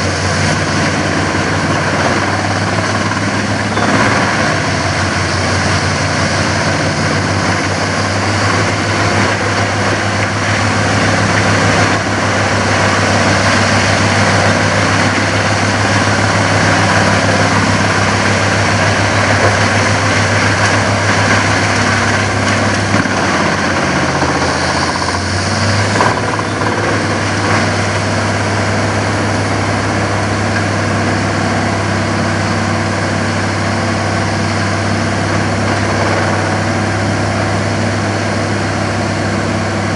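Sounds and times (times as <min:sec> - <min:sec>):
woodchipper engine running: 0:00.0 - 0:39.9.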